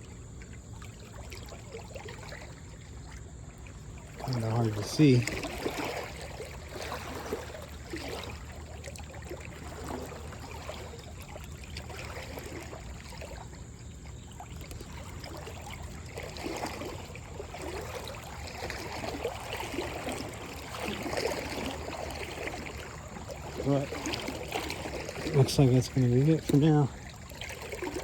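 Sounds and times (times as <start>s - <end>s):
river water lapping: 0.0s - 28.0s
small water splashes and drips: 0.0s - 28.0s.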